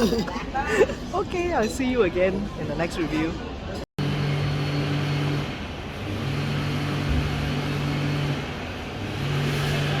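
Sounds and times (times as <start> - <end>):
low mechanical hum: 4.0 - 10.0.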